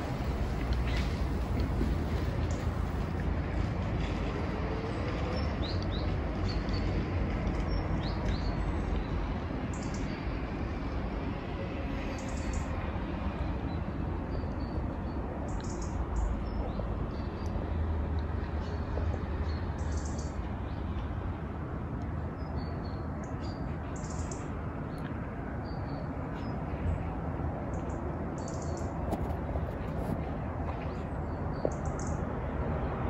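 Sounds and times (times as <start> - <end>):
birds chirping: 0.0 - 3.2
low outdoor rumble: 0.0 - 19.6.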